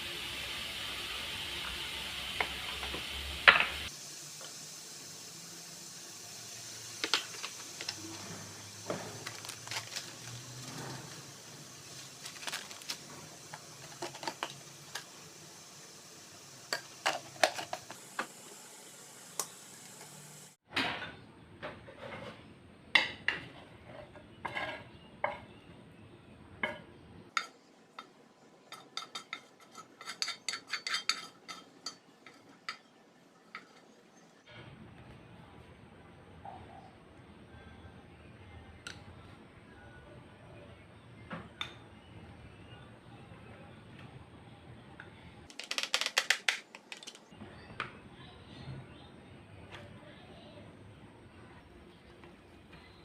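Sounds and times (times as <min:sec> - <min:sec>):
food sizzling in a pan: 0:00.0 - 0:20.6
utensils clinking on dishes: 0:07.0 - 0:15.1, 0:16.7 - 0:18.0, 0:26.6 - 0:34.0
metal utensil scraping a pan: 0:23.4 - 0:25.5, 0:28.7 - 0:32.9.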